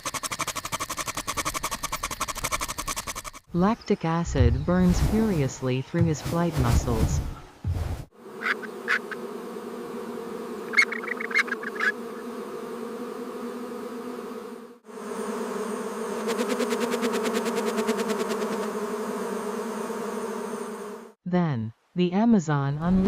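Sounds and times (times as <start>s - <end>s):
fast ticking rattle: 0.0s - 3.5s
insects buzzing: 0.0s - 21.2s.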